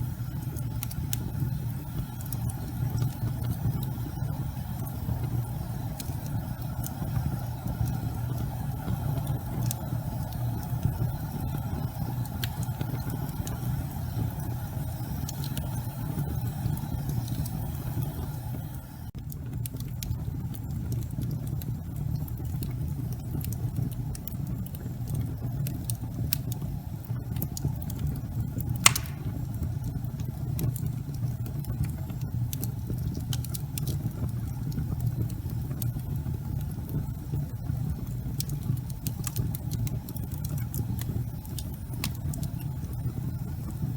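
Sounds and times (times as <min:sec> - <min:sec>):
fire crackling: 0:00.0 - 0:43.9
fire flames rumbling: 0:00.0 - 0:43.9
loud pop from fire: 0:28.8 - 0:29.6.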